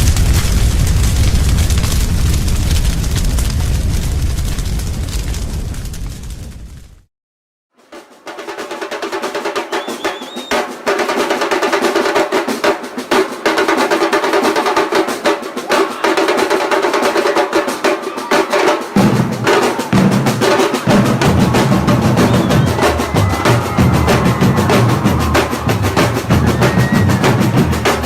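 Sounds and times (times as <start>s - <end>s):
fast dense drumming: 8.2s - 28.0s
deep bass: 20.9s - 28.0s.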